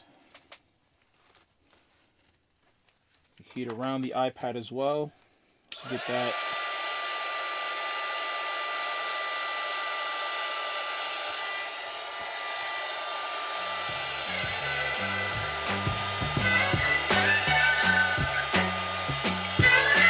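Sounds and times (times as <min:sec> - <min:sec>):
heat gun blowing with high whine: 0:05.7 - 0:20.0
background music with beat: 0:13.9 - 0:20.0.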